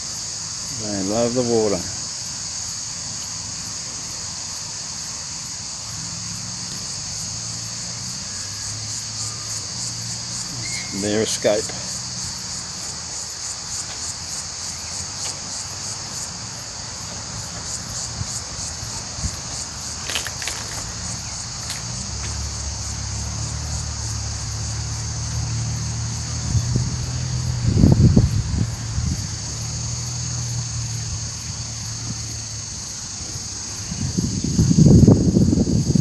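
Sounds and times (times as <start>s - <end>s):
insects chorus: 0.0s - 36.0s
wind rumble on microphone: 17.2s - 21.4s, 25.2s - 36.0s.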